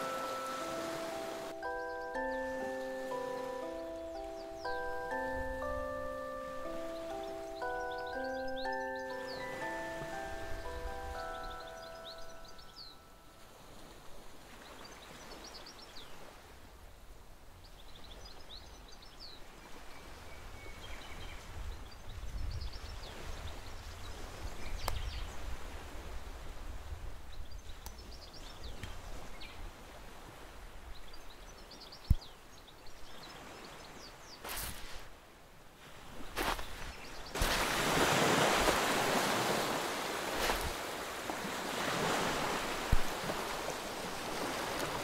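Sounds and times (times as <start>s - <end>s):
small birds chirping: 0.0s - 13.2s, 30.9s - 35.0s
wind and surf rumble: 0.0s - 45.0s.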